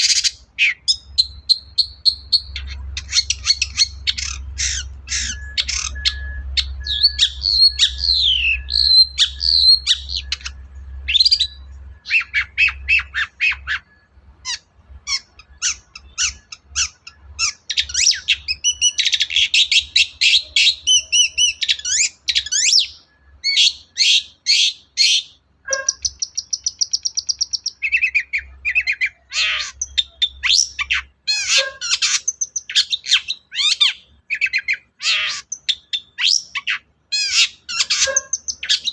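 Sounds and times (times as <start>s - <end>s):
bird singing trills: 0.0s - 38.9s.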